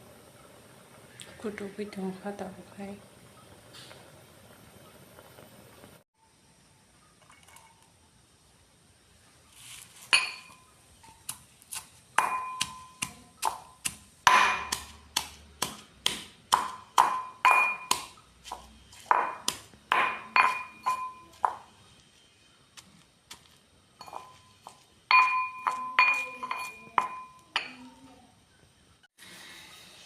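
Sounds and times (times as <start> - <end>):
utensil striking metal bowl: 12.2 - 21.7, 24.0 - 27.8.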